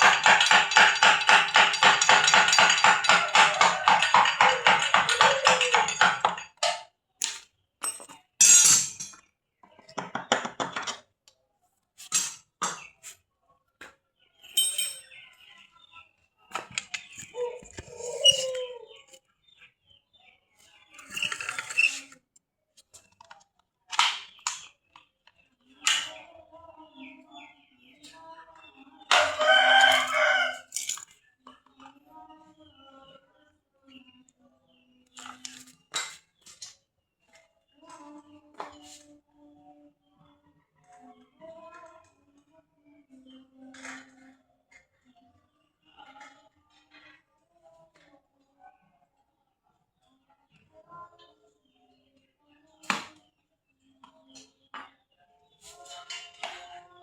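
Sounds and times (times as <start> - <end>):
rooster crowing: 2.9 - 6.0, 29.1 - 30.7.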